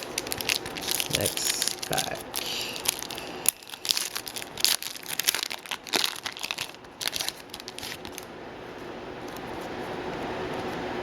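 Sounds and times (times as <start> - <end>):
wrapper torn and crinkled: 0.0 - 8.3.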